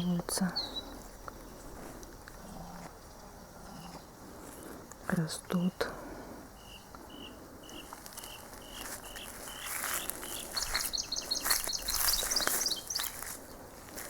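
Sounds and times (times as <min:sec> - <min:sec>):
higher stepping bird notes: 0:06.6 - 0:13.6.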